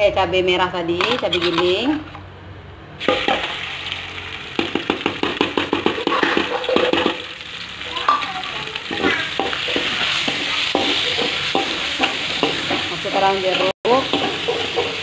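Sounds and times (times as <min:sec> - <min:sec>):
paste sizzling in hot oil: 0:03.0 - 0:15.0
metal spatula scraping and tapping: 0:08.9 - 0:15.0.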